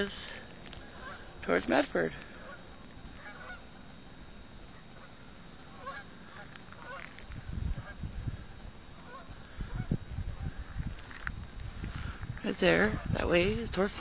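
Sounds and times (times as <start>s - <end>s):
distant geese honking: 0.0s - 1.4s, 2.1s - 10.8s.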